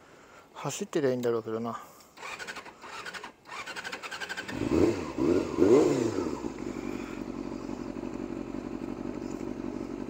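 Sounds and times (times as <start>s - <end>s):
motorcycle engine revving and idling: 2.2s - 10.0s.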